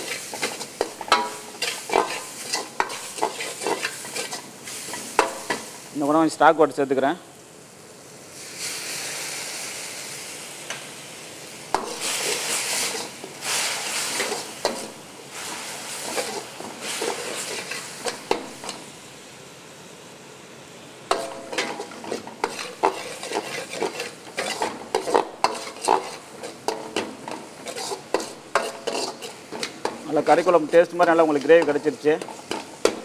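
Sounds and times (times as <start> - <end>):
ladle scraping and clinking on wok: 0.0 - 5.7, 11.7 - 18.8, 21.1 - 33.0
sizzling in a hot wok: 0.0 - 33.0.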